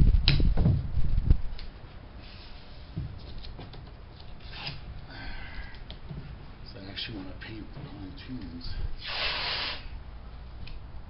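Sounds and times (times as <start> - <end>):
tape tearing off roll: 4.3 - 4.9.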